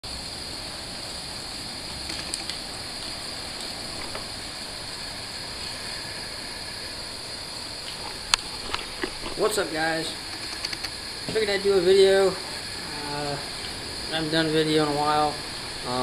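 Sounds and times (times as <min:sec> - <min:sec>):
high-pitched hiss: 0:00.0 - 0:16.0
wind rumbling on microphone: 0:00.1 - 0:16.0
faint ticks: 0:02.0 - 0:04.4.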